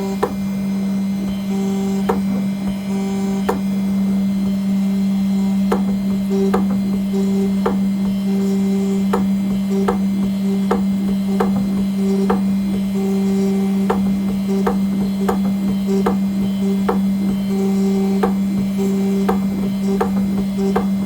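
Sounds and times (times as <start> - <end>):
engraving machine hum: 0.0 - 21.0
high machine whine: 0.0 - 21.0.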